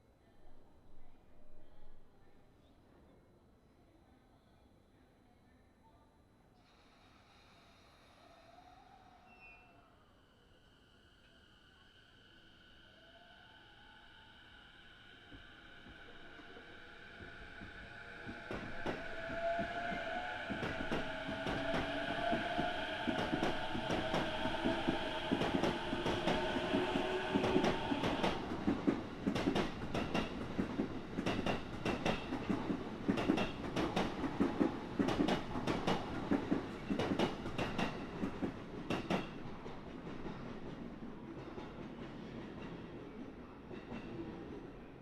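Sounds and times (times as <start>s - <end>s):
electric train whine: 7.9s - 40.7s
train wheels clicking over rail joints: 27.4s - 40.6s.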